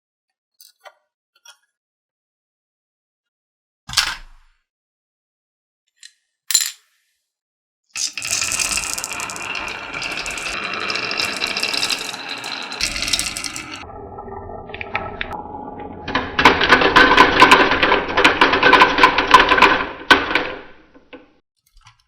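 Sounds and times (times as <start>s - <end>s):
marbles rattling down a track: 8.0s - 13.8s, 16.4s - 20.5s.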